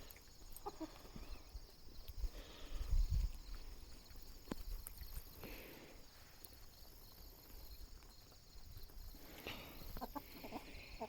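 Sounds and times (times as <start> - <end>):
insects chirping: 0.0 - 11.0
soft ticks and rustles: 3.0 - 5.5.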